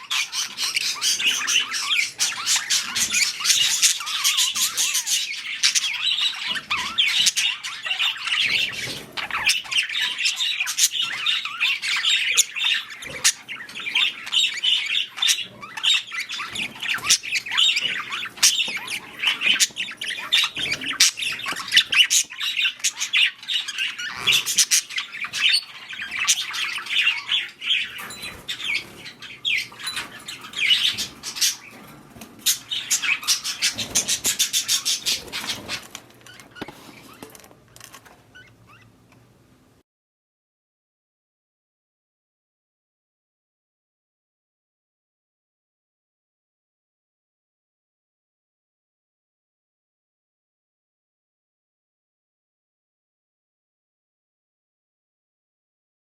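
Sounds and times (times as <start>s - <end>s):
budgerigars chattering and squawking: 0.0s - 39.0s.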